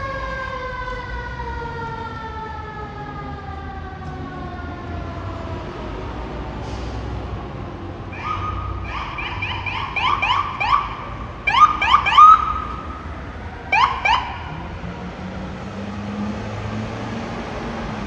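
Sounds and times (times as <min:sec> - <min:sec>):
traffic noise: 0:00.0 - 0:18.0
siren chirps: 0:08.1 - 0:14.8.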